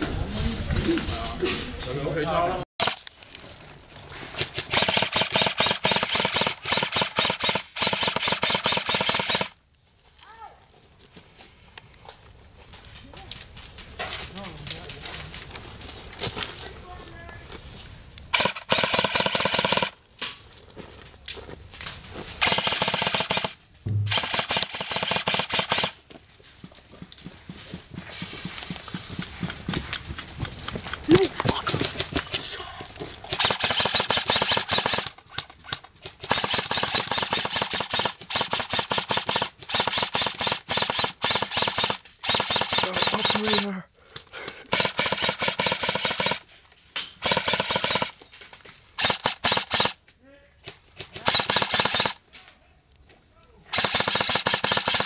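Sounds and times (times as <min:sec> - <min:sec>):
airsoft gun rapid firing: 0:04.5 - 0:09.6, 0:18.3 - 0:20.0, 0:22.4 - 0:26.0, 0:33.3 - 0:43.7, 0:44.7 - 0:46.4, 0:47.2 - 0:48.2, 0:49.0 - 0:50.0, 0:51.2 - 0:52.2, 0:53.7 - 0:55.0.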